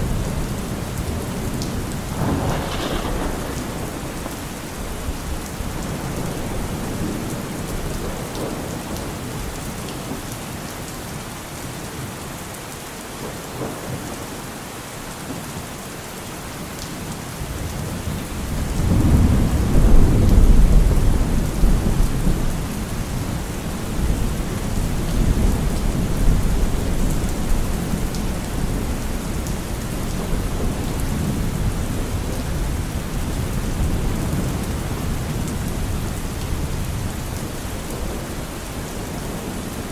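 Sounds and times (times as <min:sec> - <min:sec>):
rolling thunder: 0:00.0 - 0:09.5, 0:17.5 - 0:38.6
steady rain: 0:00.0 - 0:39.9.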